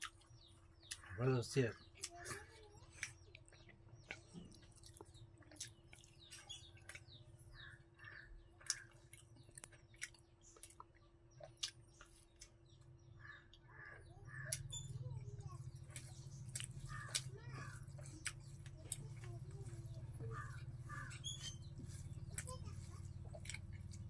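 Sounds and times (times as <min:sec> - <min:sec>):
wet mouth clicks and smacks: 0:08.6 - 0:12.6, 0:15.9 - 0:17.3.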